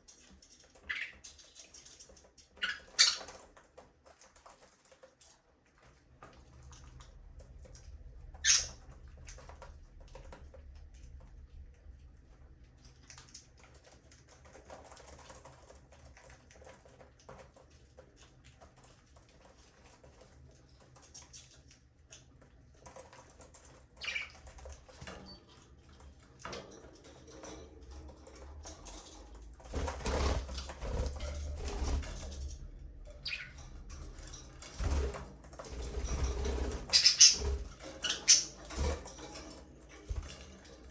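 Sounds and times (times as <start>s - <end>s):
scratching and pattering: 12.6s - 40.9s
low steady hum: 22.0s - 40.9s.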